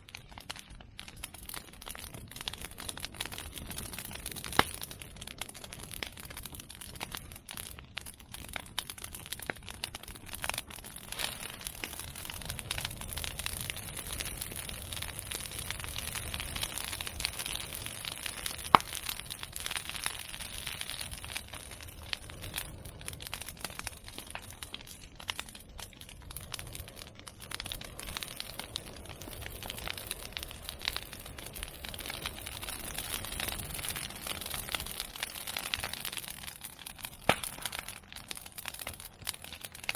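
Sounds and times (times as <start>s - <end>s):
bonfire crackling: 0.0s - 39.9s
loud sharp pop: 37.2s - 37.7s.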